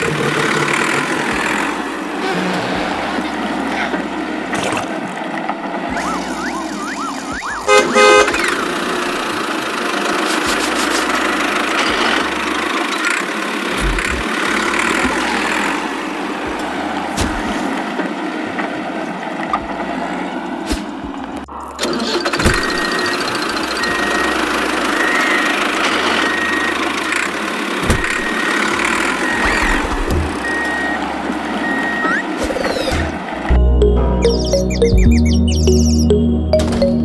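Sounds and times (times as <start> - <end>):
busy mechanical vehicle noise: 0.0 - 37.0
rising whistle-like tones: 5.9 - 8.6
loud horn-like blast: 7.6 - 8.4.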